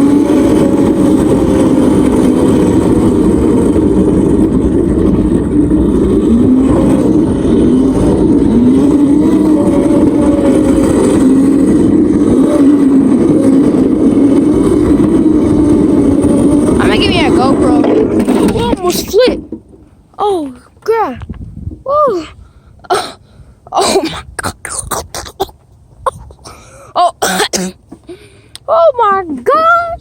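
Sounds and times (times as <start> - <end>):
wind rumble on microphone: 0.0 - 19.8, 21.0 - 23.5
vehicle engine running: 0.0 - 22.5.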